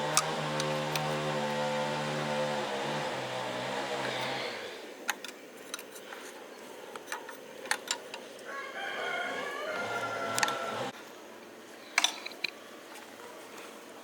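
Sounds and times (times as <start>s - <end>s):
rooster crowing: 8.5s - 10.9s.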